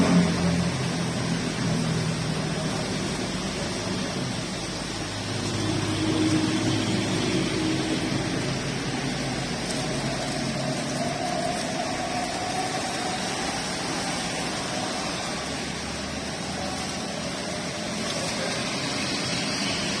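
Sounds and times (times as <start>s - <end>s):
steady rain hiss: 0.0s - 20.0s
vehicle engines passing: 0.0s - 20.0s.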